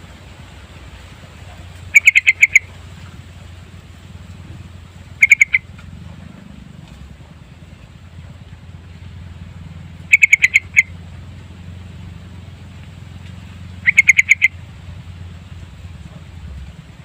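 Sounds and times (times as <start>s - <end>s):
low background hum: 0.0s - 17.0s
bird calling bright notes: 1.8s - 2.8s, 5.0s - 5.8s, 10.0s - 11.0s, 13.4s - 14.7s.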